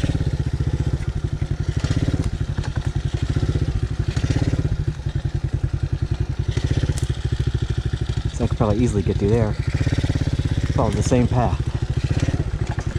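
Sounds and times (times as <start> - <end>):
dirt bike engine idling: 0.0 - 12.9.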